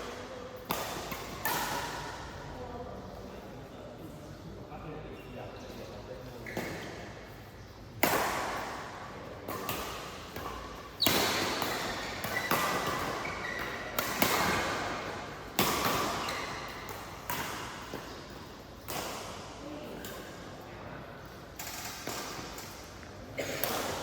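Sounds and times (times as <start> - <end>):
racket hitting shuttlecock: 0.0 - 2.4, 8.0 - 20.3, 21.6 - 24.0.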